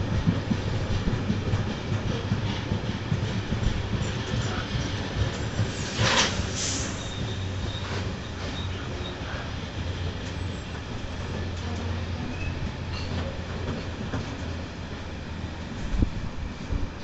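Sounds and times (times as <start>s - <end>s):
freight train wheels clattering: 0.0s - 17.0s.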